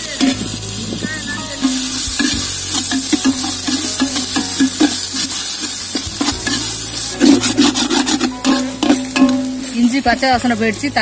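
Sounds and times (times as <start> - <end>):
onions sizzling in oil: 0.0 - 11.0
steel spatula scraping pot: 1.6 - 9.8.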